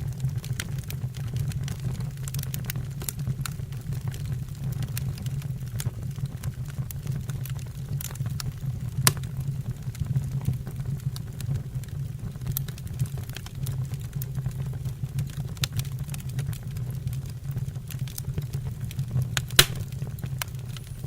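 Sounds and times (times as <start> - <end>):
fire crackling and popping: 0.0 - 21.0
low rumble of flames: 0.0 - 21.0
loud snap of burning wood: 7.5 - 9.7, 17.9 - 21.0.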